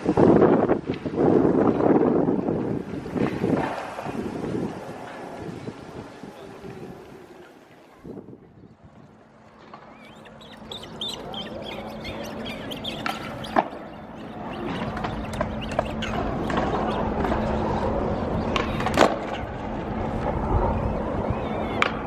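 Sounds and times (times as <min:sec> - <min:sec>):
birds chirping: 0:05.3 - 0:08.8, 0:09.6 - 0:19.5.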